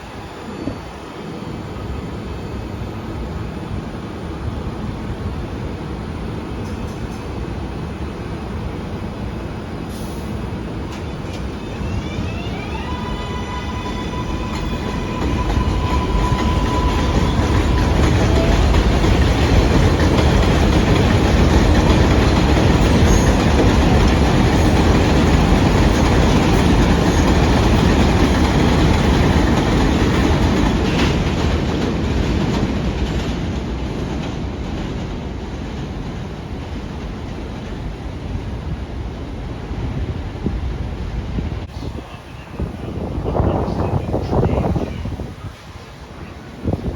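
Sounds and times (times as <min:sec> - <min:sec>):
train wheels clattering over rails: 0:14.2 - 0:38.0.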